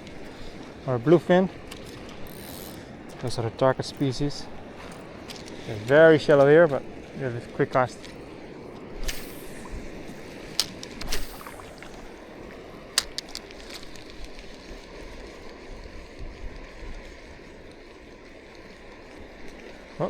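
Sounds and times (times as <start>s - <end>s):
seawater lapping over reef: 0.0s - 20.0s
sharp clicks: 10.5s - 12.2s, 13.0s - 14.4s
short swish: 11.0s - 12.1s.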